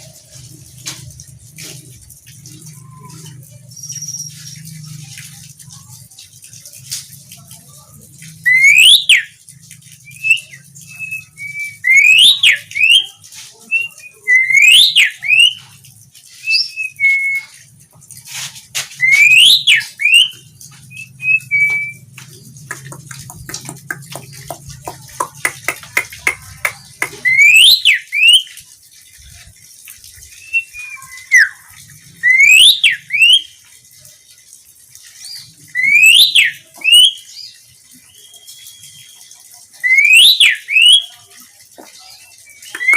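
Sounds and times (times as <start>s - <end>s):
starling whistled notes: 10.0s - 13.1s, 19.0s - 22.1s, 30.3s - 31.6s, 32.2s - 33.5s
bird chattering notes: 22.7s - 28.3s, 42.6s - 42.9s.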